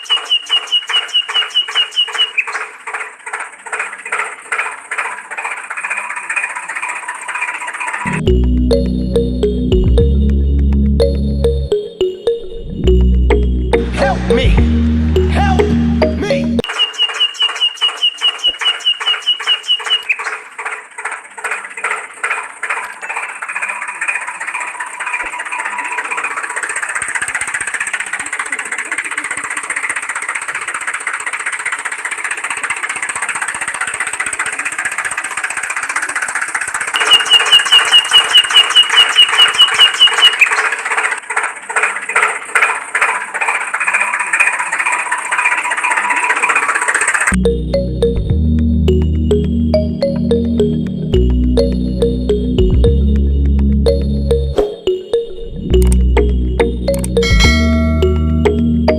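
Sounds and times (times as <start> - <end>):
tractor engine chugging: 0.0 - 11.8, 12.9 - 54.9, 55.7 - 58.9
fast high-pitched beeping: 8.1 - 20.1, 36.9 - 40.4, 53.9 - 58.9.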